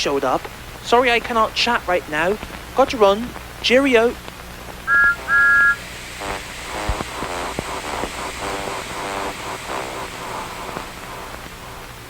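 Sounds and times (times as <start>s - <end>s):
film hiss: 0.0s - 12.0s
steam locomotive chuffing: 4.9s - 12.0s.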